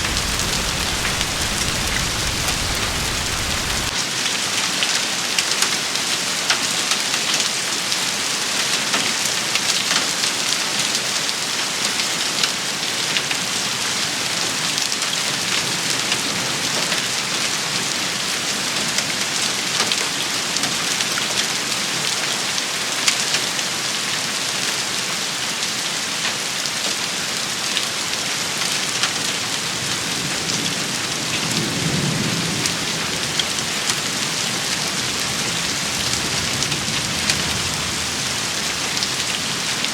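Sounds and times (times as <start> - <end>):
low rumble: 0.0 - 3.9
heavy rain hissing: 0.0 - 4.0, 29.6 - 39.9
rain drop hits: 0.0 - 4.0.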